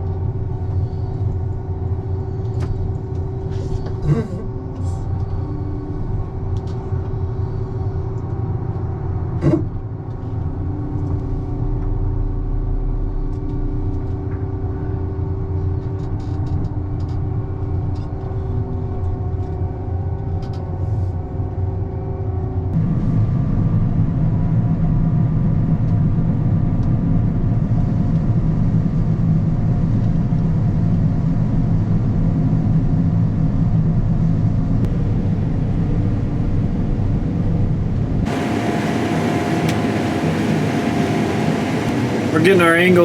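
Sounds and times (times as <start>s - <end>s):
vehicle engine running: 0.0s - 16.6s, 34.9s - 43.0s.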